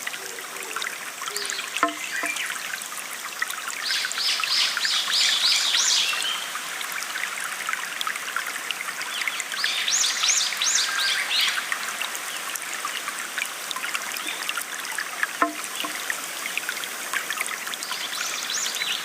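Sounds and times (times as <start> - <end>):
water trickling: 0.0 - 19.0
songbird chirping: 0.6 - 2.6.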